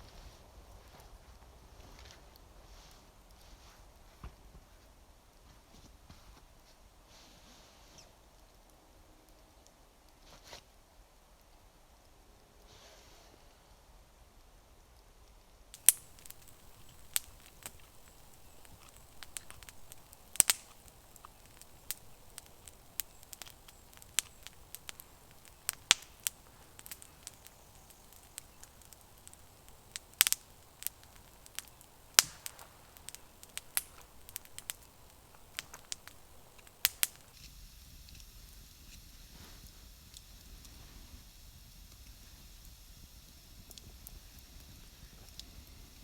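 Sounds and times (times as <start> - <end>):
faint hiss: 0.0 - 46.0
campfire crackling and popping: 15.7 - 46.0.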